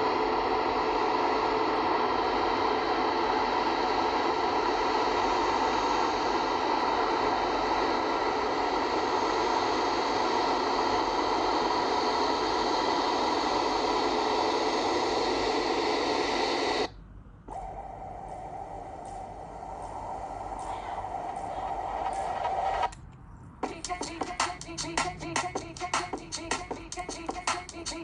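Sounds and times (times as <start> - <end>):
high whining tones: 17.5 - 28.0
jet engines rushing: 17.5 - 28.0.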